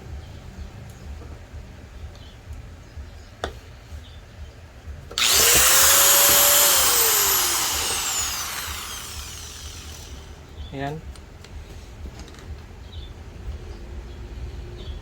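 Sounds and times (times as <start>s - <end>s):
grinder whining and winding down: 5.2s - 10.4s.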